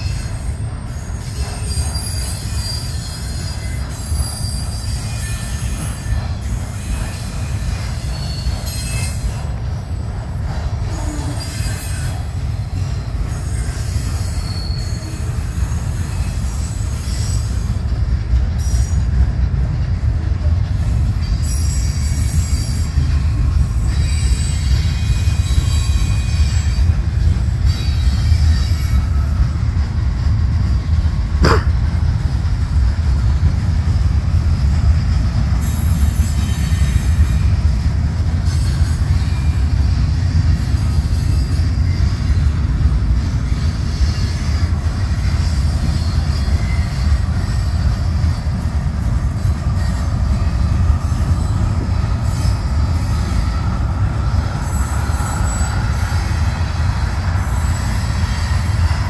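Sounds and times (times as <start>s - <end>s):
high-pitched wheel squeal: 0.0s - 9.4s, 10.8s - 12.2s, 12.8s - 17.8s, 49.4s - 59.0s
freight train wheels rumbling: 0.0s - 59.0s.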